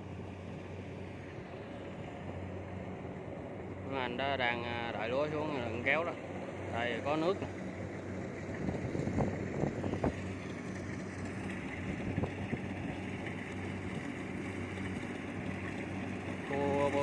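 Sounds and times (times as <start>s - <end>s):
diesel engine running: 0.0s - 17.0s
wind on microphone: 8.5s - 10.3s, 11.7s - 13.0s.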